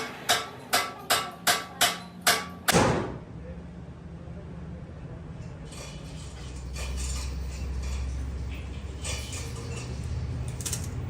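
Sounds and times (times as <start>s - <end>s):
metal tools clinking: 5.4s - 11.0s.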